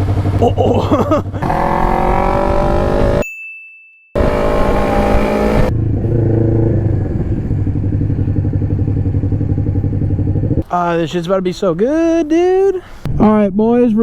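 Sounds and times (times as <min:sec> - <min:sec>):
motorcycle engine running: 0:00.0 - 0:03.2, 0:04.2 - 0:10.6.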